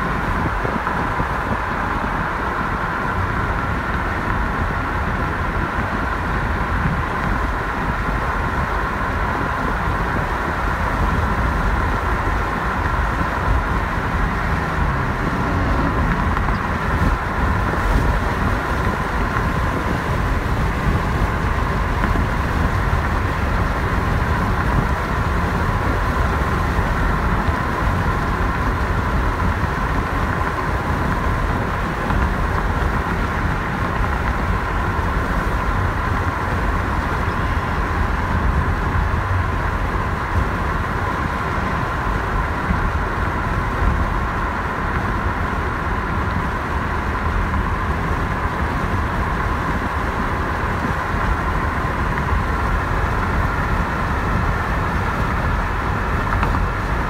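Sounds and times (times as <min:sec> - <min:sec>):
freight train rumbling past: 0:12.0 - 0:19.3.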